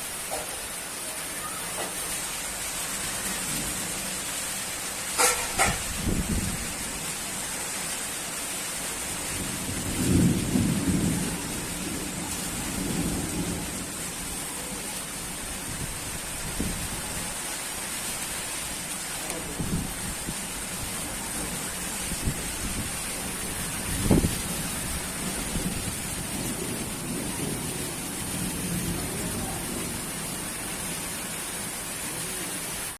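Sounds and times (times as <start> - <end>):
steady rain hissing: 0.0 - 32.9
thunder rumbling: 5.8 - 7.2, 9.2 - 17.6, 19.3 - 31.4.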